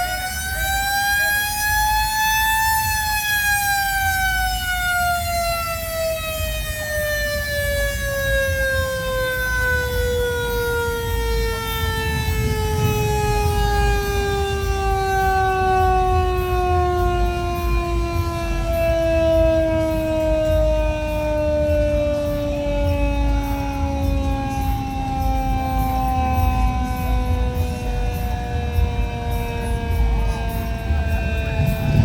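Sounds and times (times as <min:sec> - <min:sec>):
mechanical siren wailing: 0:00.0 - 0:32.0
low steady rumble: 0:26.3 - 0:32.0.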